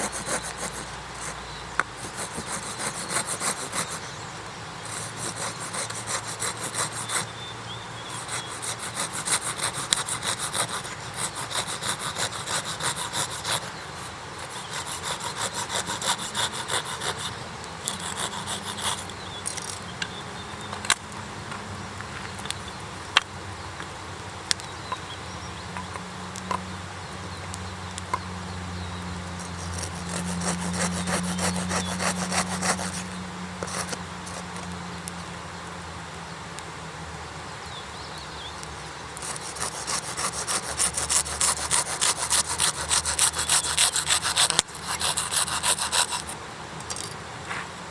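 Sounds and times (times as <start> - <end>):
hand saw cutting wood: 0.0 - 4.1, 4.8 - 7.3, 8.0 - 19.1, 29.4 - 34.7, 39.2 - 46.4.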